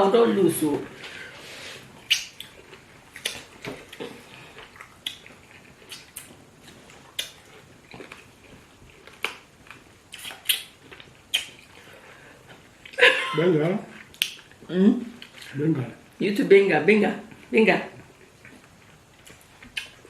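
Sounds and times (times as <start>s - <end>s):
wet eating smacks and clicks: 2.0s - 11.9s, 14.0s - 14.6s, 18.0s - 20.0s.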